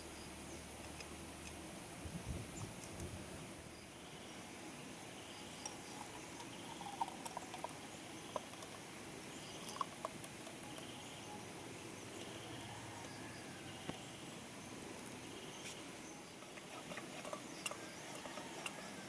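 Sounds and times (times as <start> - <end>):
steady hiss: 4.0 - 19.0.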